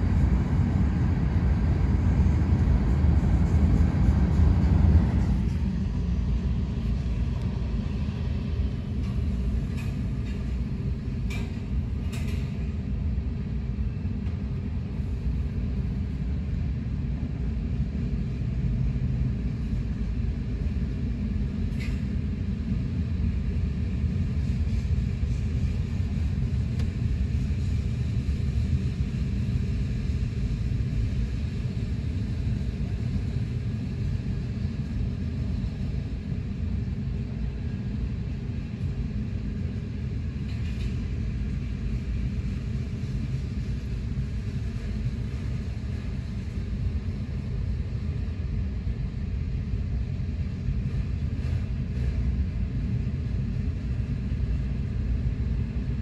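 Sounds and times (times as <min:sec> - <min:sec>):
freight train rumbling past: 0:00.0 - 0:13.0.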